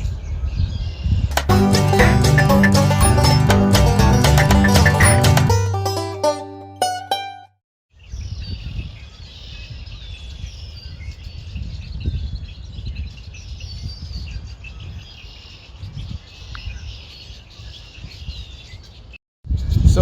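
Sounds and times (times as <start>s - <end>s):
wind rumble on microphone: 0.0s - 1.3s, 8.0s - 18.8s, 19.5s - 20.0s
songbirds chirping and trilling: 8.0s - 19.9s.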